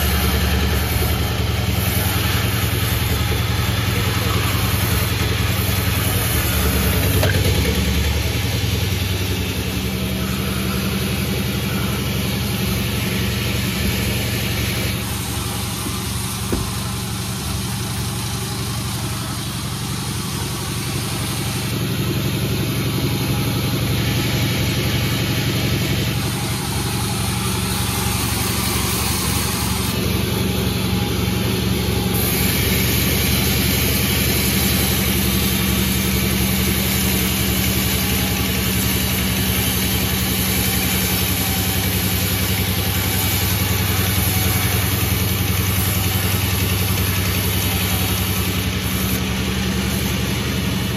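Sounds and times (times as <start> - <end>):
low engine drone: 0.0 - 50.9
sawmill cutting log: 0.0 - 50.9.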